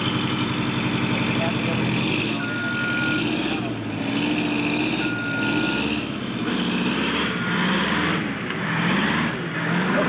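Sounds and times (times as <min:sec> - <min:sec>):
diesel truck engine revving: 0:00.0 - 0:10.0
backup alarm beeping: 0:02.4 - 0:03.3, 0:05.0 - 0:05.8.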